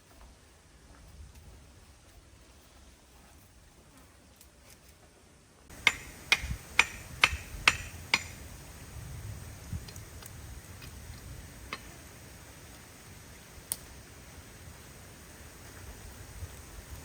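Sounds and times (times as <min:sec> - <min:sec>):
sharp knocks: 0:05.7 - 0:08.4.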